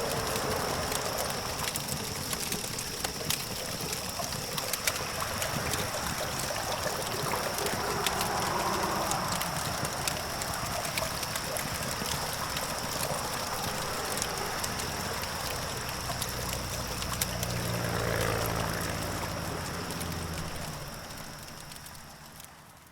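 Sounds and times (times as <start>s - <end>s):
campfire crackling and popping: 0.0s - 22.9s
distant traffic passing: 0.0s - 22.9s.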